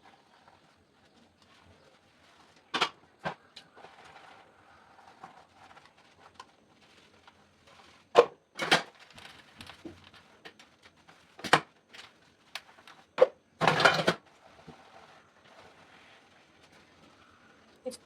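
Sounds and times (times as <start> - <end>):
kitchen utensils knocking and clattering: 2.8 - 3.0, 8.2 - 8.9, 13.2 - 14.2.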